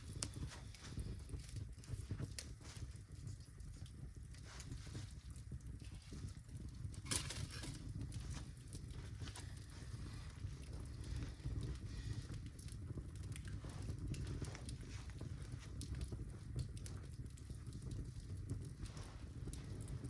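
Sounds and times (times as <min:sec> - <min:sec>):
logs crackling and popping: 0:00.0 - 0:20.0
steady low rumble: 0:04.2 - 0:20.0.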